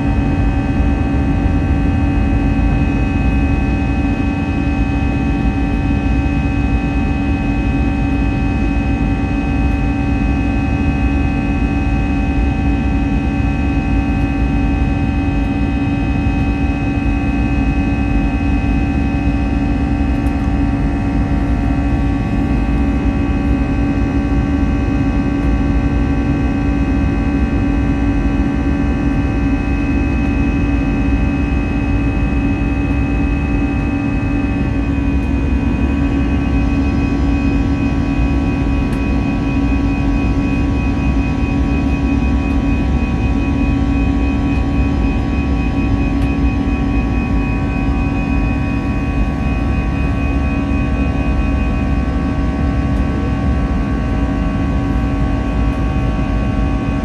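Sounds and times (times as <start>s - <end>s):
jet engines humming in cabin: 0.0s - 57.0s.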